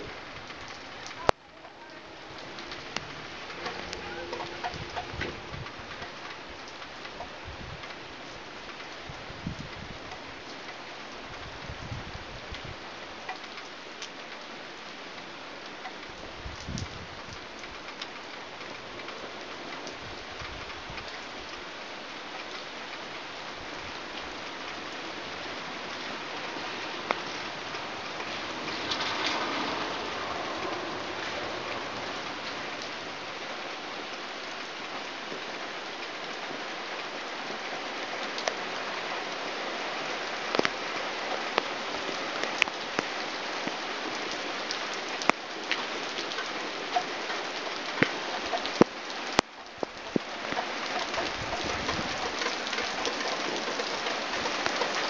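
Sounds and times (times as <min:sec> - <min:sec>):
raindrops tapping close by: 0:00.0 - 0:55.0
torrential rain: 0:00.0 - 0:55.0.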